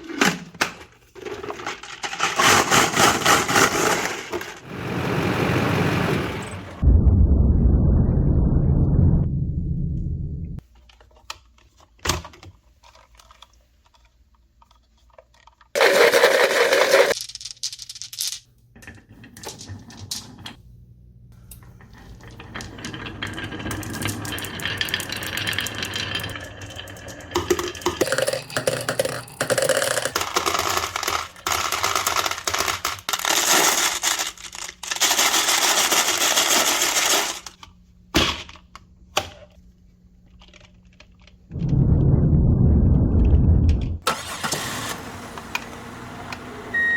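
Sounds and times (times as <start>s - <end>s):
marbles rolling along track: 22.3s - 37.5s
marbles clicking and knocking: 23.7s - 32.8s.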